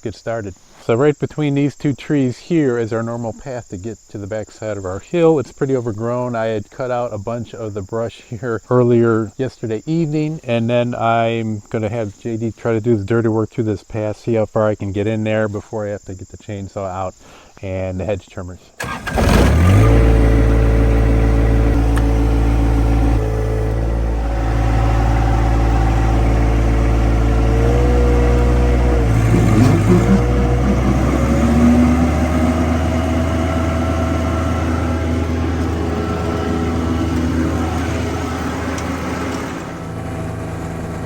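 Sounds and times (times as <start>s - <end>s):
tractor diesel engine running: 18.8s - 41.0s.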